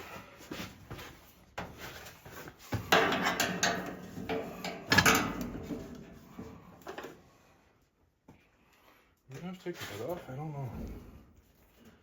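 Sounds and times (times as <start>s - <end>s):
hard objects knocking and clattering: 2.7s - 7.1s.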